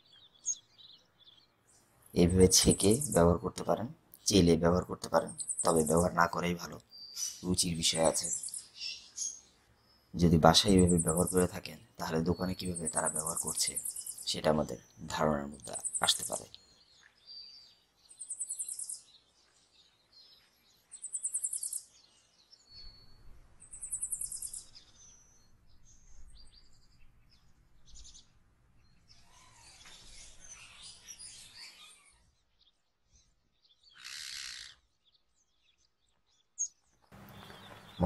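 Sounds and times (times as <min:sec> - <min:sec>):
birds chirping and calling: 0:00.0 - 0:38.0
high rapid bird trill: 0:02.2 - 0:03.8, 0:04.8 - 0:09.4, 0:10.2 - 0:16.6.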